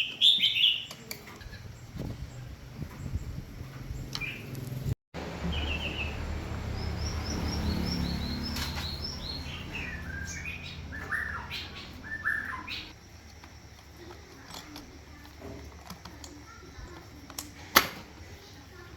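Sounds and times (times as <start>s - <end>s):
bird chirping: 0.0s - 1.1s, 1.7s - 4.6s, 5.4s - 13.0s.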